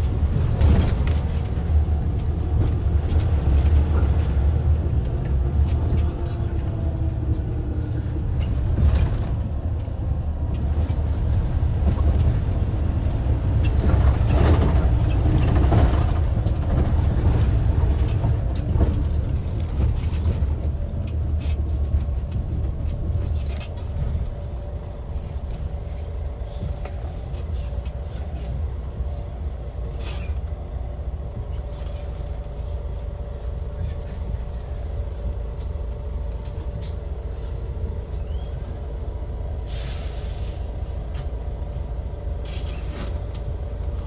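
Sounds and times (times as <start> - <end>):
diesel engine rumbling: 0.0 - 44.0.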